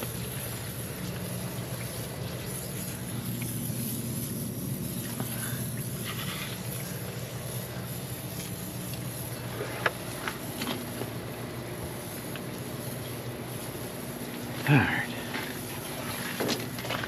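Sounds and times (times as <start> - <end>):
pressure washer humming: 0.0 - 17.0.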